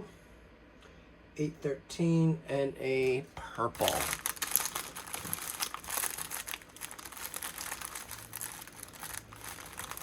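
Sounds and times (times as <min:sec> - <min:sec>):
plastic bags crinkling: 0:03.8 - 0:10.0.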